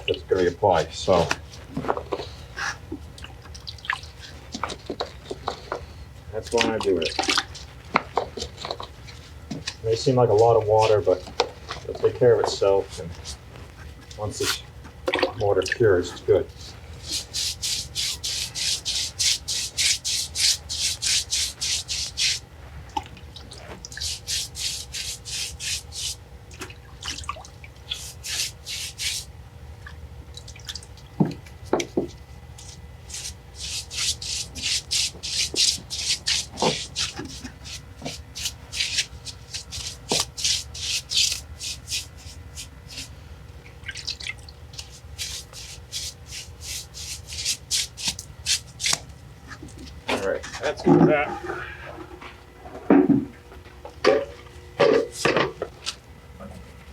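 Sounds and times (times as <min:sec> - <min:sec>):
wet scrubbing on masonry: 0:06.4 - 0:29.4, 0:31.8 - 0:43.2, 0:43.8 - 0:49.8
water dripping: 0:26.5 - 0:27.9, 0:29.8 - 0:31.2, 0:43.6 - 0:44.9.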